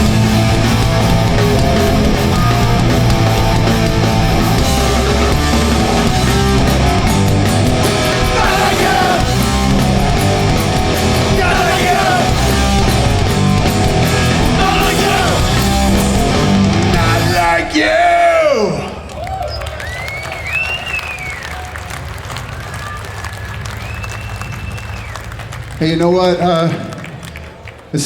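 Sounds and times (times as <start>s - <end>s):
punk band playing live: 0.0s - 18.8s
shouted singing: 7.8s - 19.4s.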